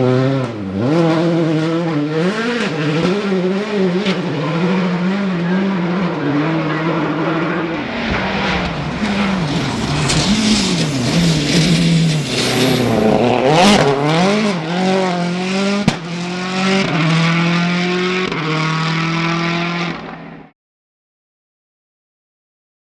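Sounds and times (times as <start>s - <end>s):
rally car engine revving: 0.0s - 20.5s
sharp crack: 7.7s - 14.5s, 15.8s - 16.1s.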